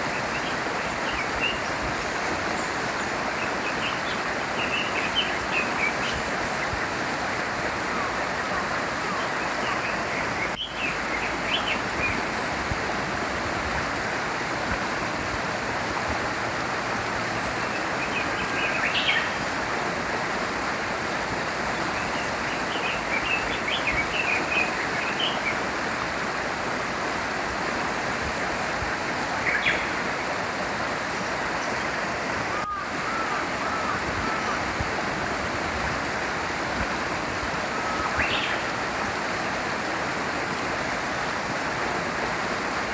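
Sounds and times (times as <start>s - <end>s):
small stream flowing: 0.0s - 42.9s
songbirds chirping: 0.1s - 12.4s.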